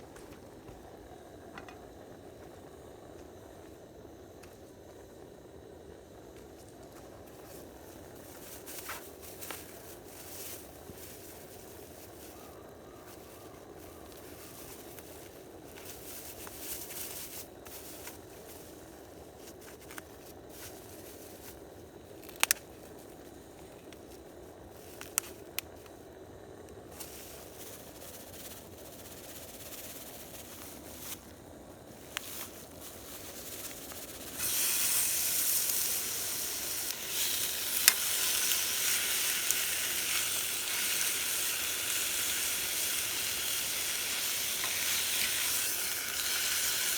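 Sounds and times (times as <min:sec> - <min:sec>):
food sizzling in hot oil: 0:32.9 - 0:46.9.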